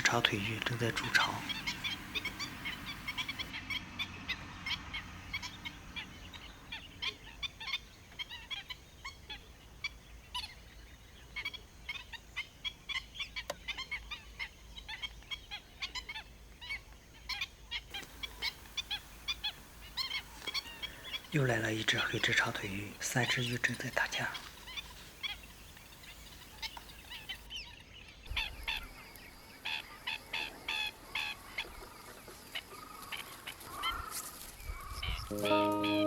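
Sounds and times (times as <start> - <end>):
birds yelping calls: 0.0 - 3.8, 17.9 - 27.7.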